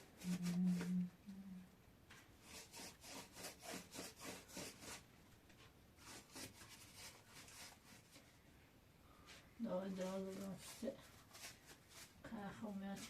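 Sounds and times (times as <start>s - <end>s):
faint rhythmic scraping: 9.2s - 13.0s.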